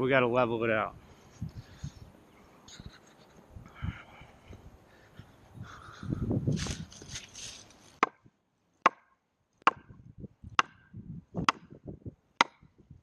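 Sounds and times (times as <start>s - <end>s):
sledgehammer striking log: 8.0s - 10.0s, 10.6s - 11.8s, 12.4s - 12.7s.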